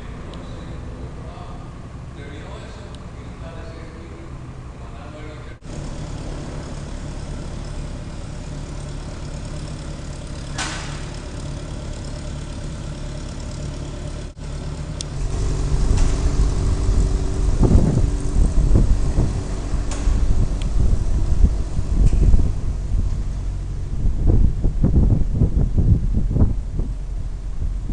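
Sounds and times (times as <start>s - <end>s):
low engine rumble: 0.0s - 27.9s
wind buffeting microphone: 15.1s - 27.9s.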